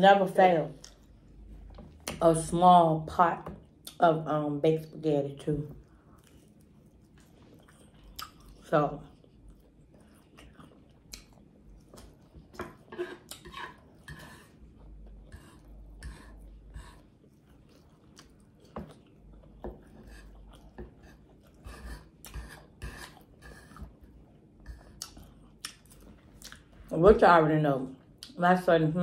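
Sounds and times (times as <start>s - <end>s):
open-mouth chewing smacks: 5.8s - 12.6s, 17.2s - 21.6s, 24.0s - 26.8s.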